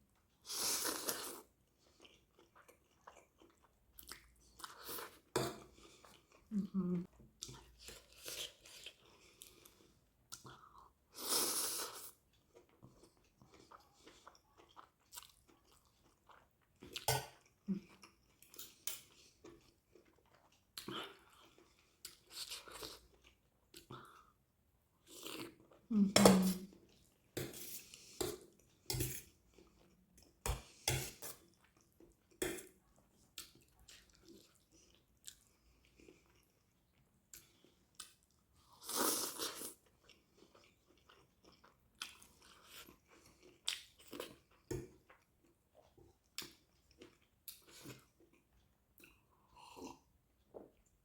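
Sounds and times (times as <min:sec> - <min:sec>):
close chewing and mouth sounds: 0:00.0 - 0:51.0.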